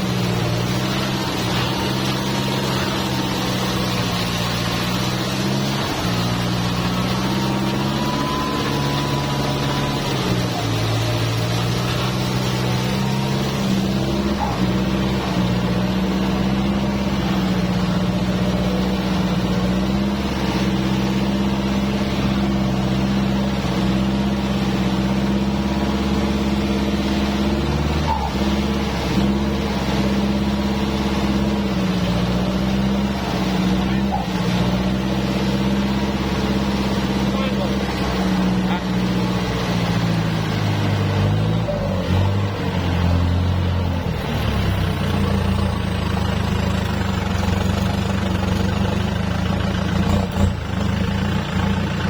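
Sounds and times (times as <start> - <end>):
tractor diesel engine running: 0.0 - 52.0.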